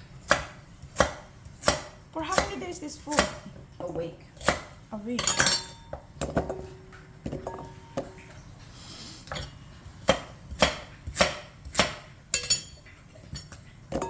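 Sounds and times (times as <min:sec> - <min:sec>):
knife chopping on cutting board: 0:00.2 - 0:03.5, 0:04.4 - 0:04.8, 0:10.0 - 0:12.1.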